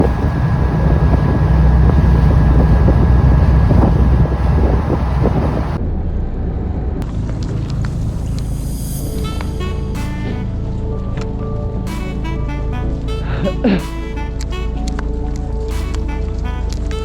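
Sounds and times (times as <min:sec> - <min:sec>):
boat engine running: 0:00.0 - 0:05.8
wind buffeting microphone: 0:00.0 - 0:05.8.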